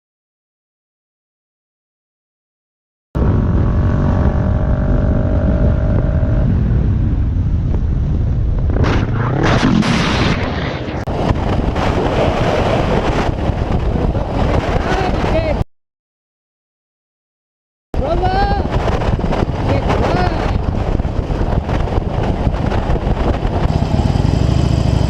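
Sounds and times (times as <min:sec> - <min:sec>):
vehicle road and engine rumble: 0:03.2 - 0:08.8, 0:18.0 - 0:25.0
wind buffeting microphone: 0:03.2 - 0:15.6, 0:18.0 - 0:25.0.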